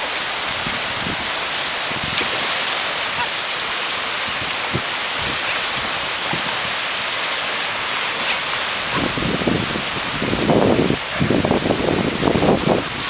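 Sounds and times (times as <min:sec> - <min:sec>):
surf rushing on beach: 0:00.0 - 0:13.0
wind buffeting microphone: 0:00.4 - 0:02.5, 0:04.2 - 0:06.8, 0:08.2 - 0:13.0.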